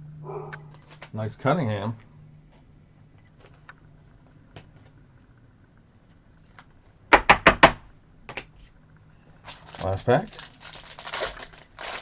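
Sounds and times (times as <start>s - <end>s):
foil card pack crinkling: 9.4s - 12.0s.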